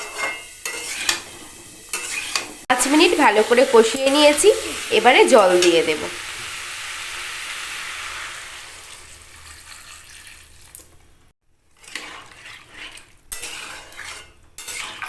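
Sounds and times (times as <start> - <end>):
water hissing in hot pan: 0.0 - 10.8.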